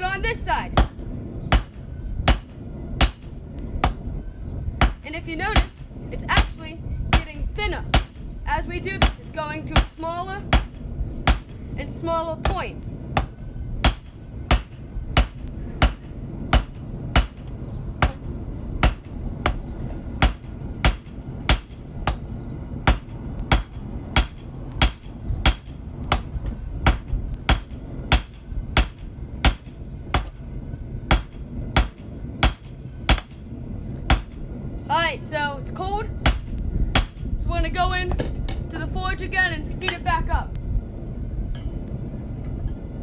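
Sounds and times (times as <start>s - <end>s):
hammer striking steel on anvil: 6.4s - 8.2s, 10.5s - 11.6s, 13.2s - 19.6s, 20.2s - 30.4s, 31.1s - 33.4s.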